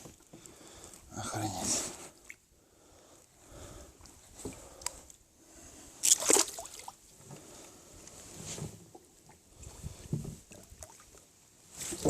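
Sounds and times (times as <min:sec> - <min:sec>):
water splashing against boat: 0:00.0 - 0:02.4, 0:06.0 - 0:12.0.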